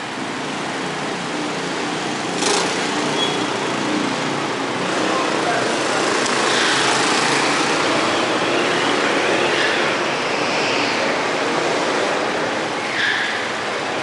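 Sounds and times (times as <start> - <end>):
motorcycle engine: 1.3 - 9.6.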